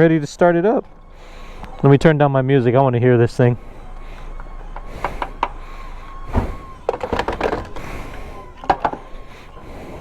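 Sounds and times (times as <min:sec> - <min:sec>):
faint steady tone: 0:00.0 - 0:10.0
sharp clicks and knocks: 0:04.3 - 0:05.6, 0:06.2 - 0:09.1
heavy thunk: 0:06.3 - 0:07.9.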